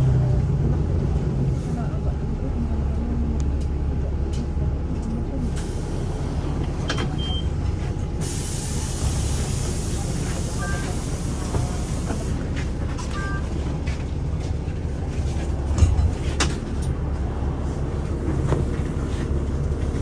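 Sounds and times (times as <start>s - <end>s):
bus engine rumble: 0.0s - 20.0s
short beep: 7.2s - 7.5s, 13.1s - 13.5s
air brake hiss: 8.2s - 10.1s.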